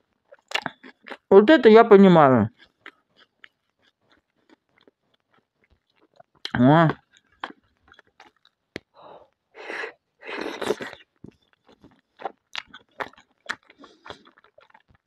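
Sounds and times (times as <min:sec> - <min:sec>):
wet chewing: 0:00.1 - 0:01.3, 0:02.5 - 0:09.4, 0:10.2 - 0:15.0
breathy sounds: 0:08.9 - 0:11.0.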